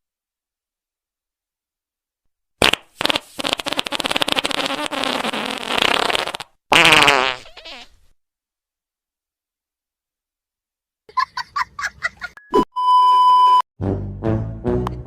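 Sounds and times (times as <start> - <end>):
fart sound effects: 2.6 - 8.0.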